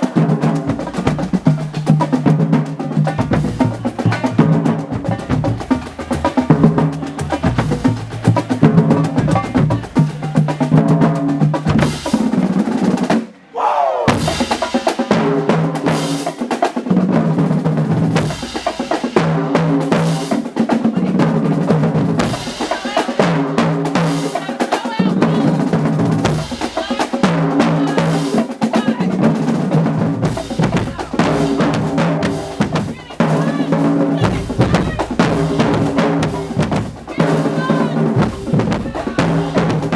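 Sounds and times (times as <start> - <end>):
marching drumline cadence: 0.0 - 39.9.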